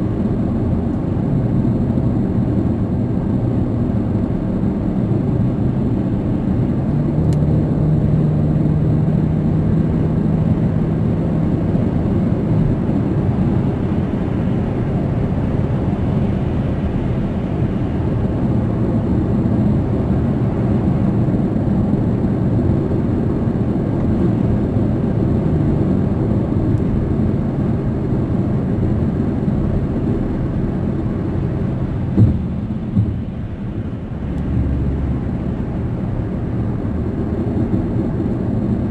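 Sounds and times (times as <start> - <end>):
car cabin road rumble: 0.0 - 38.9
low hum: 0.0 - 38.9
brief thumps: 32.1 - 33.5.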